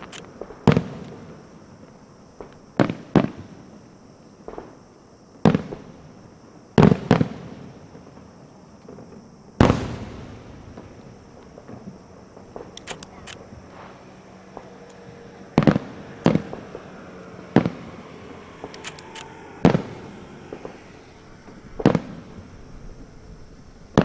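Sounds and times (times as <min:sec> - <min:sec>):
firework crackling: 0:00.0 - 0:24.0
firework shells bursting: 0:09.6 - 0:16.8.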